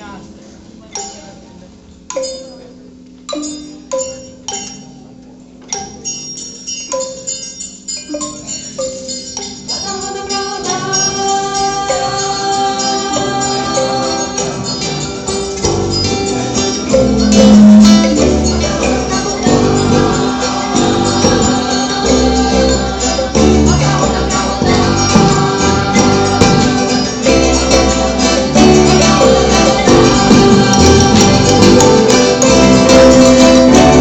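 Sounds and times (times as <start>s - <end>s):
voices singing: 9.5s - 34.0s
plucked guitar: 10.2s - 34.0s.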